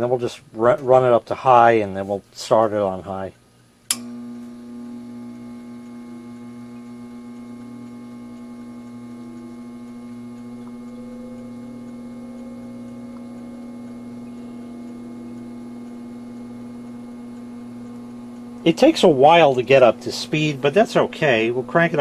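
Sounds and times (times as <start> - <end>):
fume extractor fan humming: 0.0 - 22.0
faint rising tone: 9.2 - 22.0.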